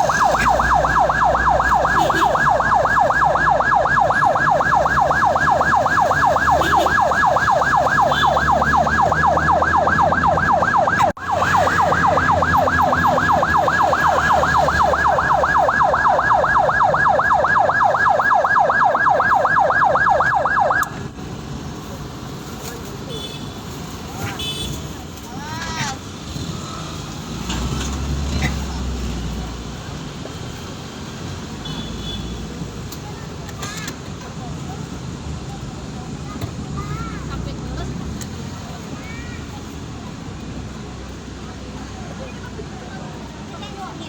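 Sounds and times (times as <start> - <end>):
ambulance siren yelping: 0.0 - 21.0.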